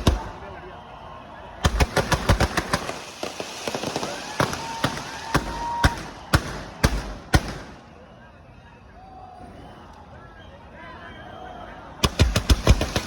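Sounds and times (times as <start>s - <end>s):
fireworks bangs: 0.0s - 0.6s, 1.6s - 7.9s, 12.0s - 13.0s
firecrackers crackling: 0.0s - 0.7s, 1.5s - 8.0s, 12.0s - 13.0s
firework whistle: 2.5s - 8.3s.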